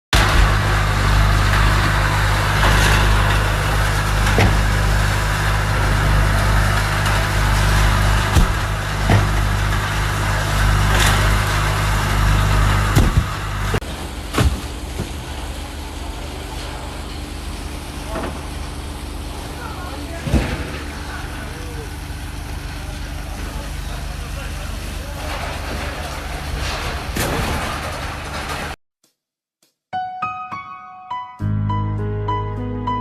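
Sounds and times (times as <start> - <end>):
large engine running: 0.2 - 28.8
sharp knocks and clanks: 1.5 - 15.3.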